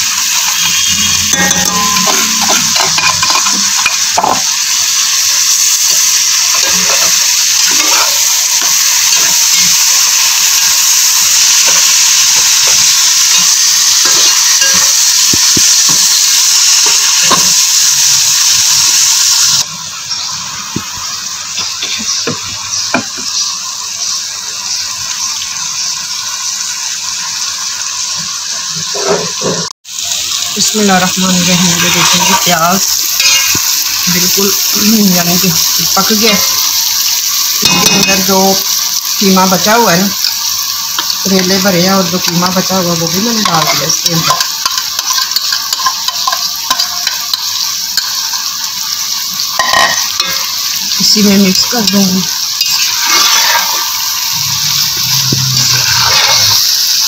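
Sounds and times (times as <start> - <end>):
paste sizzling in hot oil: 0.0 - 57.0
spatula scraping a pot: 52.6 - 56.7.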